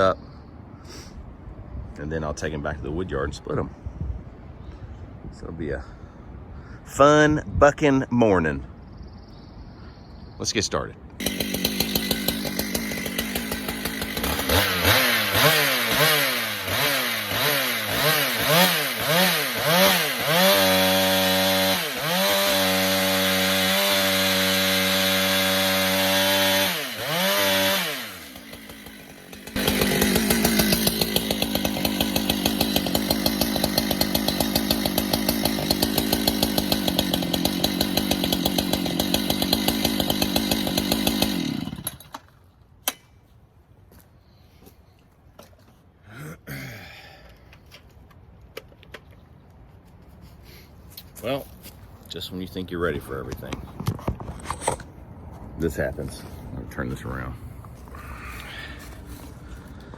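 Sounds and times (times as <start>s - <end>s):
chainsaw revving and cutting log: 11.2s - 42.2s.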